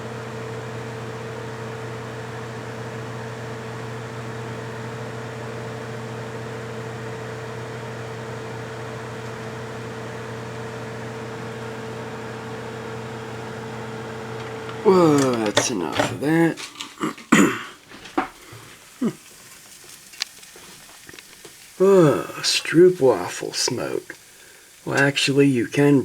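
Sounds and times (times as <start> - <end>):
microwave oven humming: 0.0 - 26.0
fan noise: 7.1 - 26.0.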